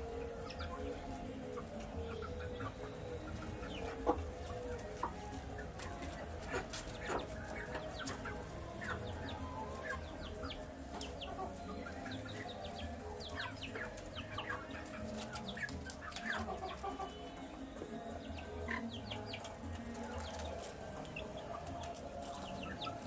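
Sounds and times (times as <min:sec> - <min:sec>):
chicks peeping: 0:00.0 - 0:23.0.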